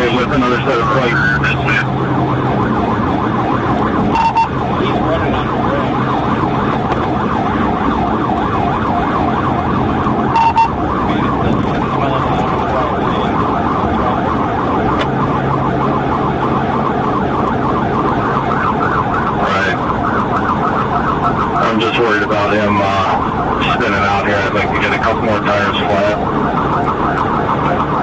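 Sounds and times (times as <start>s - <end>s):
police siren yelp: 0.0s - 28.0s
vehicle hum: 0.0s - 28.0s
short beep: 10.4s - 10.8s.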